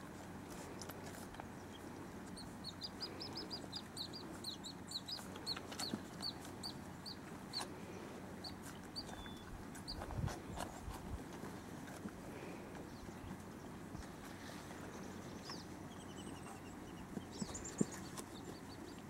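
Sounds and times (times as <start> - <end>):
bird chirping: 1.6 - 7.7, 8.4 - 10.8, 14.9 - 19.0.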